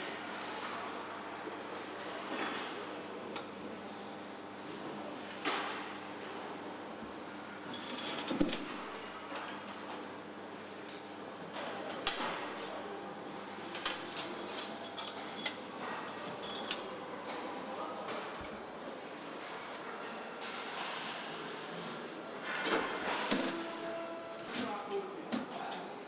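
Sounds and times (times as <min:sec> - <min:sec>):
factory machinery hum: 0:10.5 - 0:26.0.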